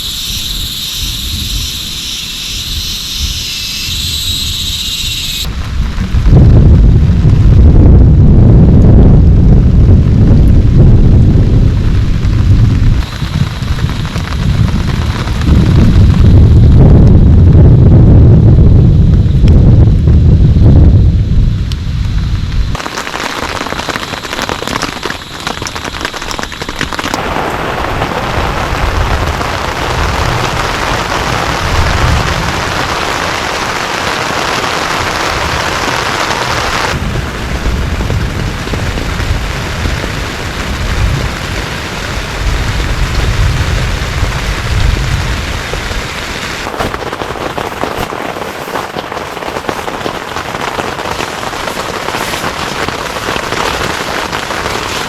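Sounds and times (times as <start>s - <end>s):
low rumble: 0.0s - 33.1s, 36.9s - 47.1s
heavy rain pouring: 0.0s - 55.0s.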